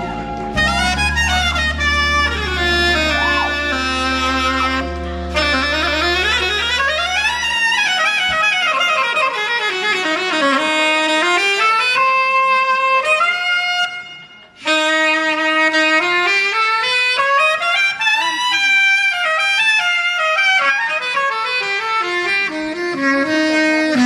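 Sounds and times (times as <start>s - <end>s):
low held backing note: 0.0s - 7.6s
saxophone solo: 0.0s - 24.0s.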